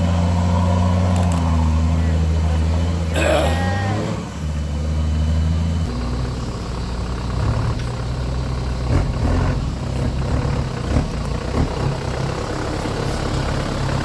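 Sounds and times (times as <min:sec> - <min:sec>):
engine running at low revs: 0:00.0 - 0:14.0.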